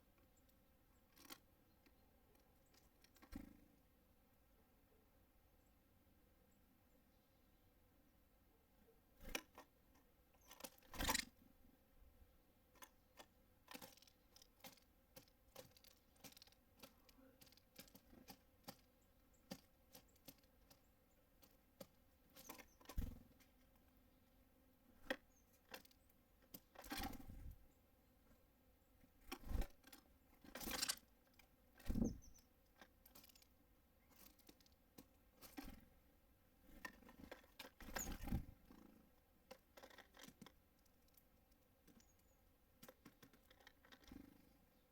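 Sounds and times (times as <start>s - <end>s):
beaks tapping on bird feeder: 12.8s - 23.4s.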